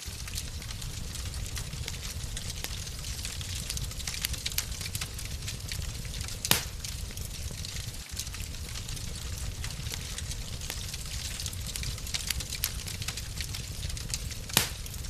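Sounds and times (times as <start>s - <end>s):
wood fire crackling: 0.0s - 15.0s
loud fire pop: 6.4s - 7.0s, 14.5s - 15.0s.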